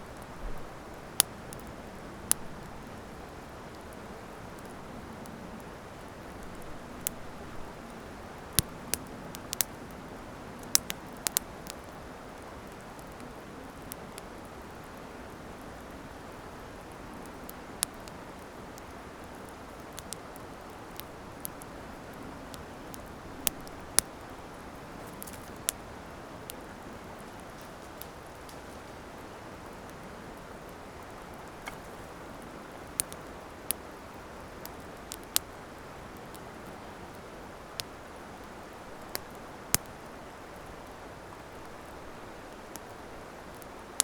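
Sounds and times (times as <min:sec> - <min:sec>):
campfire pops and snaps: 0:00.9 - 0:01.7, 0:06.4 - 0:09.8, 0:10.6 - 0:11.9, 0:17.2 - 0:24.2, 0:25.0 - 0:25.9, 0:31.5 - 0:32.2, 0:32.8 - 0:33.8, 0:37.8 - 0:40.0.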